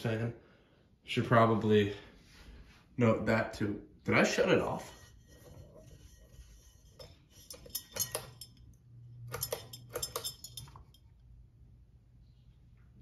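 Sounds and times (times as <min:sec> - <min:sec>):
pull chain clinking on glass: 0:06.9 - 0:11.2.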